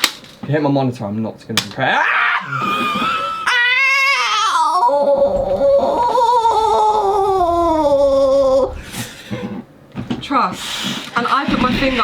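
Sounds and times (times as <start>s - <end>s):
person wailing: 1.9s - 8.8s.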